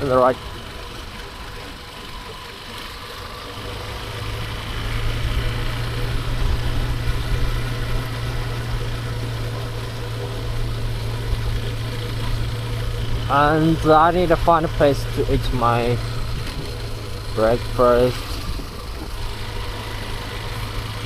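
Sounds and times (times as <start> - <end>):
motorbike engine humming: 0.0 - 21.0.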